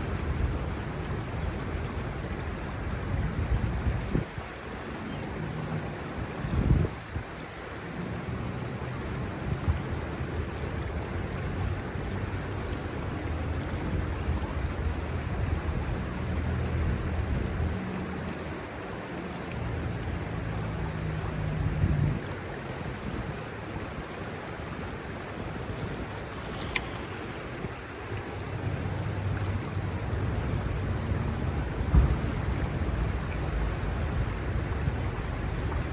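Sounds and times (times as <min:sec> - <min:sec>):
wind buffeting microphone: 0:00.0 - 0:04.6, 0:05.7 - 0:07.5, 0:21.2 - 0:35.9
river water rushing: 0:00.0 - 0:35.9.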